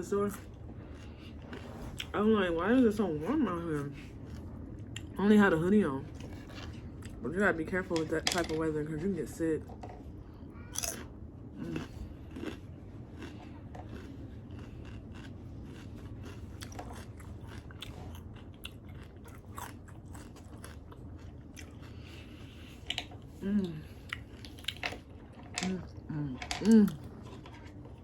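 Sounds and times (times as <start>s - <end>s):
steady low rumble: 0.0s - 28.0s
crunchy chewing: 0.3s - 2.2s, 10.7s - 25.3s.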